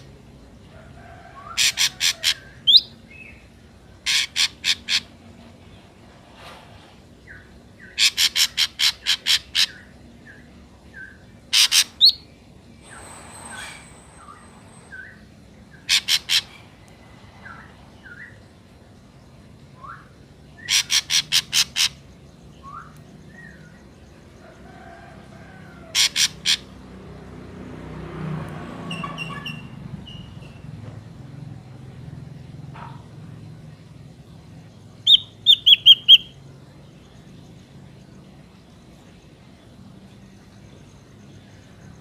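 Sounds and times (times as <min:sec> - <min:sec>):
bird harsh repeated calls: 0:01.5 - 0:03.0, 0:04.0 - 0:05.3, 0:07.8 - 0:09.9, 0:11.5 - 0:12.2, 0:15.7 - 0:18.4, 0:20.6 - 0:22.1, 0:25.9 - 0:26.8, 0:35.0 - 0:36.4.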